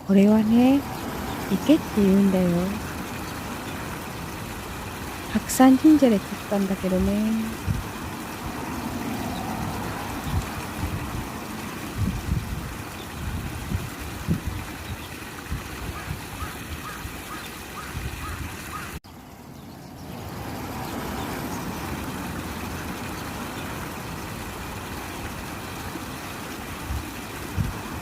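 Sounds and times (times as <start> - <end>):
water babbling: 0.0 - 28.0
wind rumbling on microphone: 6.9 - 19.0, 26.8 - 28.0.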